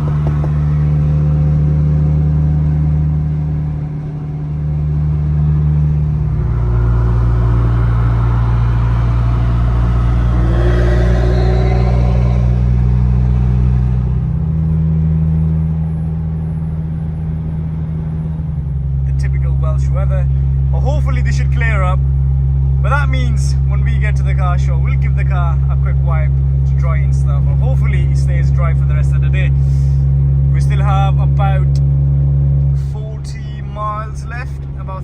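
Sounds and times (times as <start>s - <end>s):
car engine and road drone: 0.0s - 22.8s.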